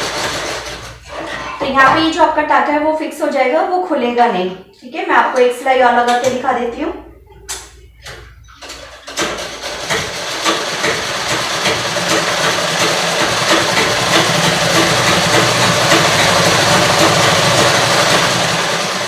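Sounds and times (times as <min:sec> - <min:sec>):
treadle sewing machine clatter: 0:00.0 - 0:01.6, 0:08.6 - 0:19.0.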